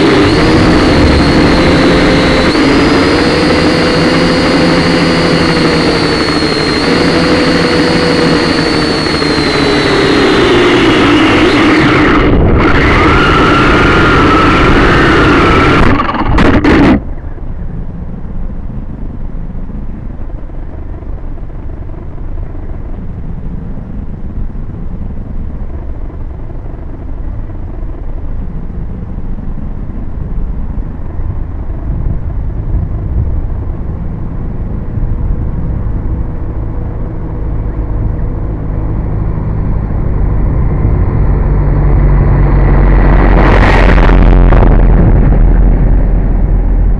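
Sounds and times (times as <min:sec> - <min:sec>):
drone motors whining: 0:00.0 - 0:17.7, 0:35.3 - 0:46.9
low traffic rumble: 0:00.0 - 0:46.9
truck approaching: 0:00.0 - 0:46.9.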